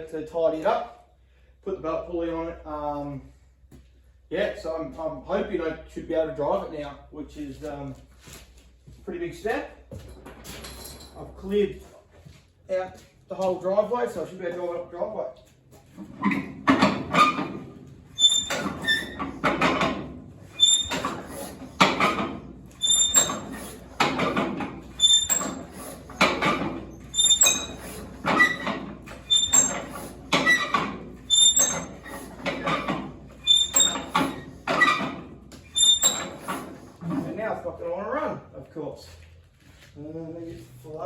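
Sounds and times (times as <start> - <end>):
tractor engine hand-cranked: 16.0 - 37.4
crank squeak: 16.2 - 37.3.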